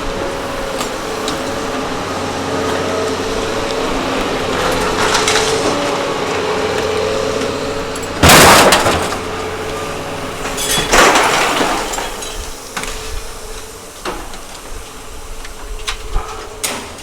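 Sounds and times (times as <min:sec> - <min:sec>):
machinery humming: 0:00.0 - 0:17.0
scrap crashing in compactor: 0:00.2 - 0:13.0.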